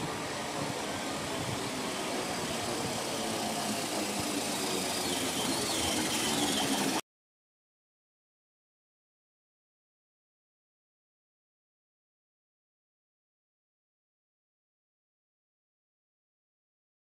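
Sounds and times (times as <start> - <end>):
train wheels on rails: 0.0 - 7.0.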